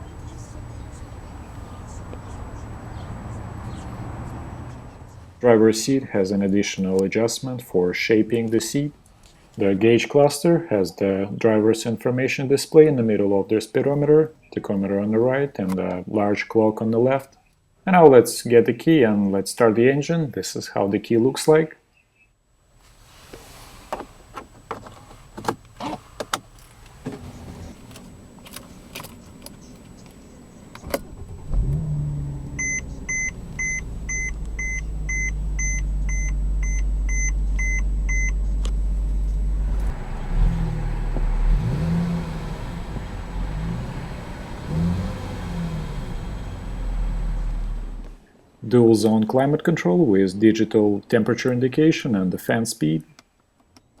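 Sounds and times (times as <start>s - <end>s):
car engine revving: 0.0s - 5.3s, 27.0s - 48.2s
car engine starting and idling: 0.0s - 5.6s, 24.0s - 48.2s
dashboard warning chime beeping: 27.2s - 39.8s.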